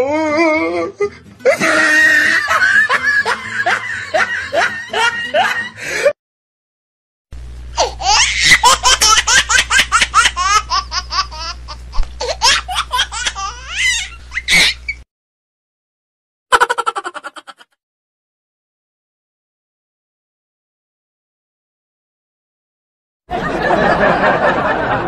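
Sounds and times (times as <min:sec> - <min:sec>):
laugh in short bursts: 0:01.4 - 0:06.1, 0:16.5 - 0:17.7
high-pitched laugh: 0:01.4 - 0:06.2, 0:07.8 - 0:15.0, 0:16.5 - 0:17.8.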